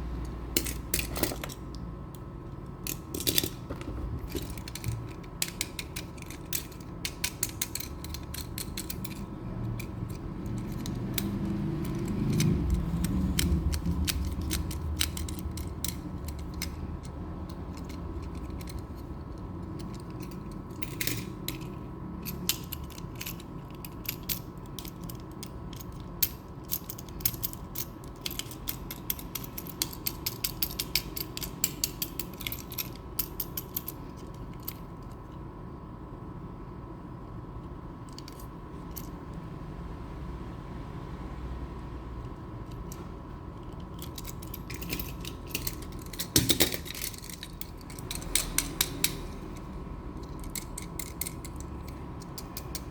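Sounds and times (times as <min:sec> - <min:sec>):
toy parts clicking and ratcheting: 0:04.3 - 0:19.0, 0:43.9 - 0:52.9.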